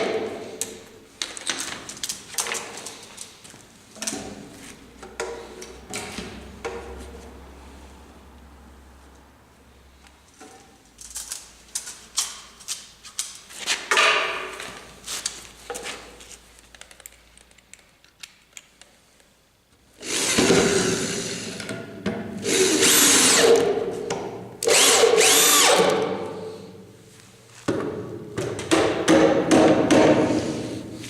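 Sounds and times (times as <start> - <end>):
electric drill motor whirring: 20.0 - 21.6, 22.4 - 23.7, 24.6 - 26.1.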